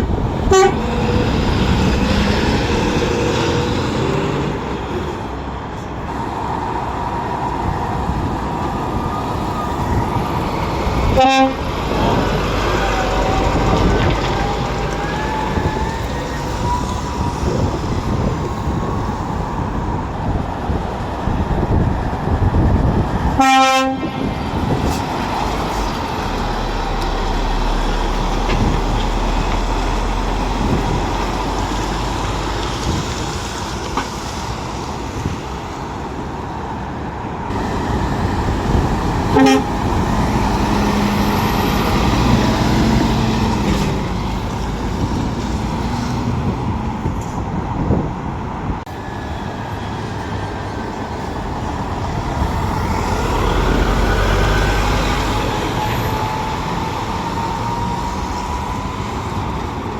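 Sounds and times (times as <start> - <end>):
lorry engines and traffic: 0.0 - 59.9
truck horn blasts: 0.4 - 0.9, 11.2 - 11.7, 23.4 - 24.3, 39.3 - 39.8.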